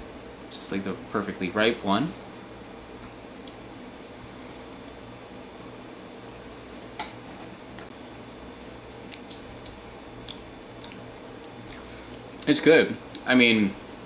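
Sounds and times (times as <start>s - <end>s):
mouth chewing clicks: 9.0s - 11.1s.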